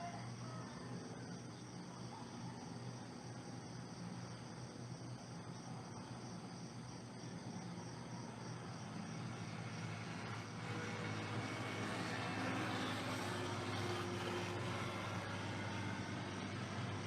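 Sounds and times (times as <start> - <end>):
vehicle motor passing: 9.5 - 17.0.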